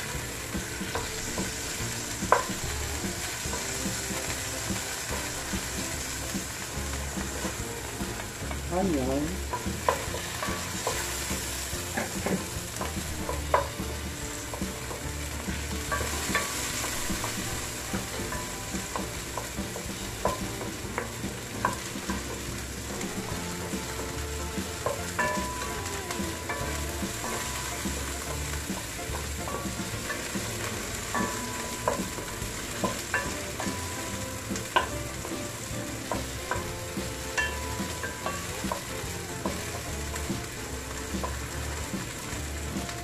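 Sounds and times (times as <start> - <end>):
onion sizzling in hot oil: 0.0 - 43.0
wooden spoon knocking against pot: 0.1 - 8.7, 9.3 - 43.0.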